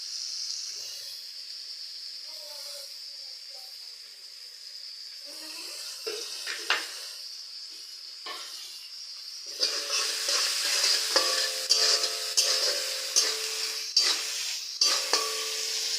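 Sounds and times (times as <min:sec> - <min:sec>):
vegetables sizzling in oil: 0:00.0 - 0:15.9
utensil stirring and knocking pan: 0:09.5 - 0:15.9.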